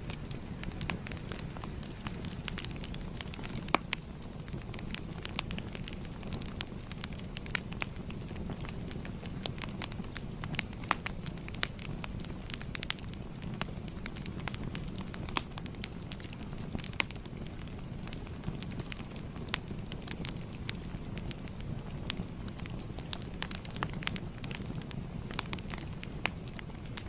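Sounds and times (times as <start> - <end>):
fire snaps and pops: 0.0 - 27.0
low rumble of flames: 0.0 - 27.0.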